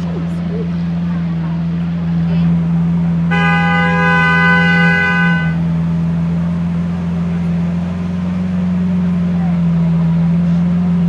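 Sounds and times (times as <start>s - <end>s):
car engine idling: 0.0s - 11.0s
steady horn-like tone: 3.3s - 5.7s.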